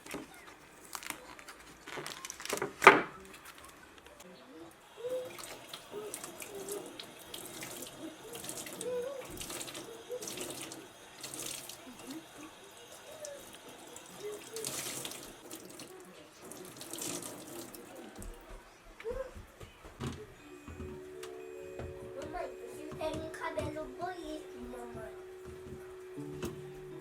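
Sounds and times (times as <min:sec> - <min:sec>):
water splashing: 0:05.0 - 0:18.2.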